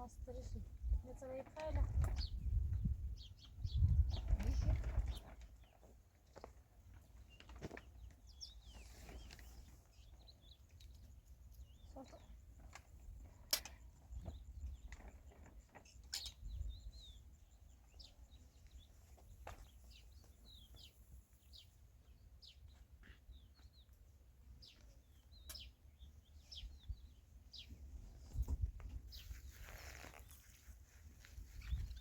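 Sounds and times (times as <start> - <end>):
faint birds chirping: 0.0 - 32.0
brief rustle: 28.3 - 32.0.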